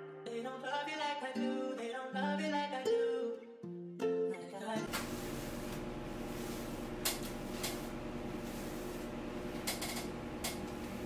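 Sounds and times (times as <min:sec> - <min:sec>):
low electrical hum: 0:04.9 - 0:11.0.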